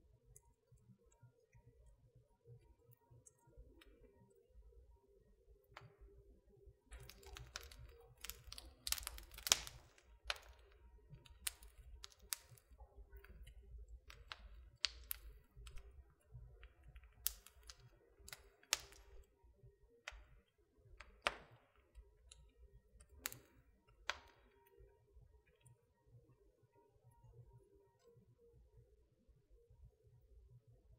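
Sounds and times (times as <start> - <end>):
pops and snaps of burning wood: 6.9 - 19.3, 20.0 - 24.8
wood fire crackling: 6.9 - 19.4, 20.0 - 24.9.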